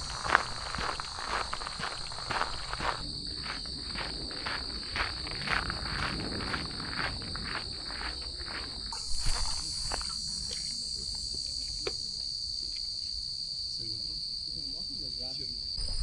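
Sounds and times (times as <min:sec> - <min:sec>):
footsteps on a trail: 0:00.0 - 0:12.8
crickets chirping: 0:00.0 - 0:16.0.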